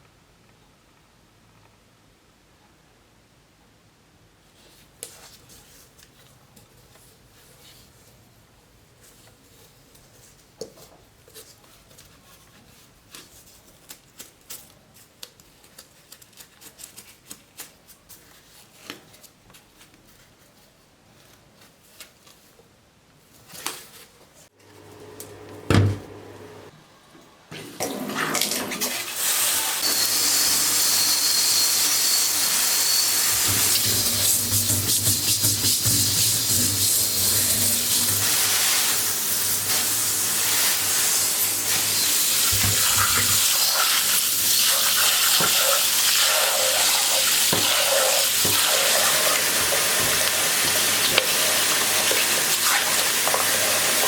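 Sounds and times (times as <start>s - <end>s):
low motor hum: 24.6s - 26.7s.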